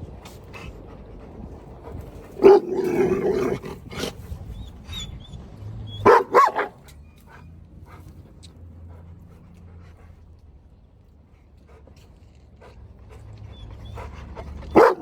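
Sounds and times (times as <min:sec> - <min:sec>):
dog barking: 0:02.4 - 0:03.6, 0:06.0 - 0:06.8, 0:14.7 - 0:15.0.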